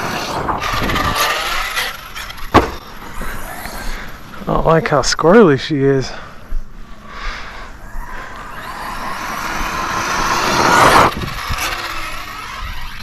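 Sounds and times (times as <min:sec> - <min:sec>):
electric motor whining: 0:00.0 - 0:04.8, 0:07.8 - 0:13.0.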